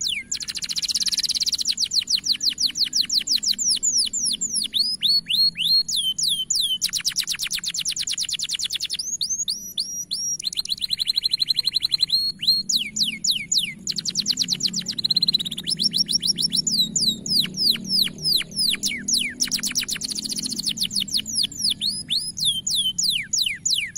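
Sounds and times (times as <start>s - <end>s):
canary singing: 0.0s - 23.9s.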